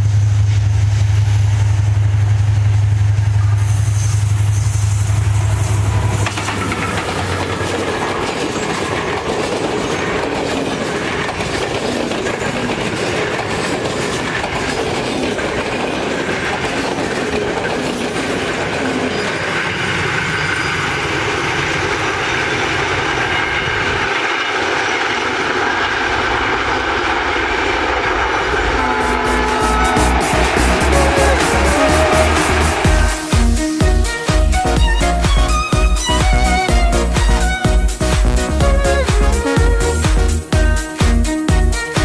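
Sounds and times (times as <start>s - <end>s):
train wheels on rails: 0.0s - 42.0s
wheels clicking over rail joints: 6.1s - 26.0s.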